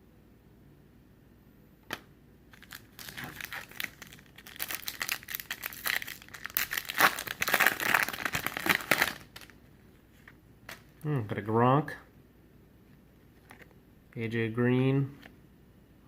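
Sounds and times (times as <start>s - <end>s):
foil wrapper crinkling and tearing: 2.5s - 9.6s.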